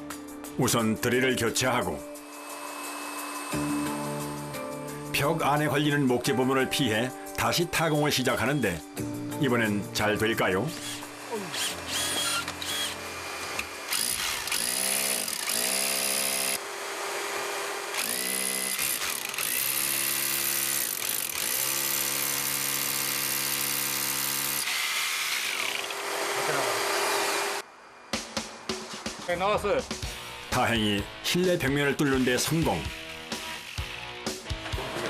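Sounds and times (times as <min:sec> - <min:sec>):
drill bit grinding through wall: 0:02.2 - 0:03.9, 0:10.8 - 0:27.6, 0:32.9 - 0:34.2
power drill whining: 0:02.2 - 0:03.9, 0:10.7 - 0:27.6, 0:32.9 - 0:34.2.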